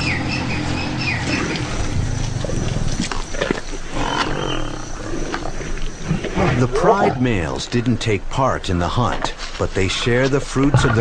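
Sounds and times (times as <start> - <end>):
bird chirps: 0.0 - 1.7
lions growling: 1.2 - 7.3.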